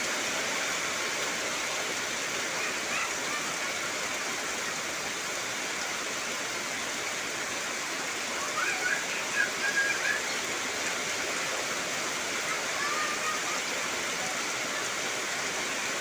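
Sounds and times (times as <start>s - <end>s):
heavy rain: 0.0s - 16.0s
wavering high calls: 8.4s - 10.6s.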